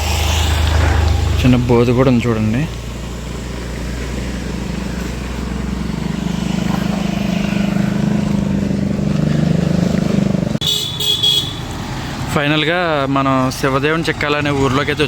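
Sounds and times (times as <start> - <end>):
vehicle engine droning: 0.0 - 10.6.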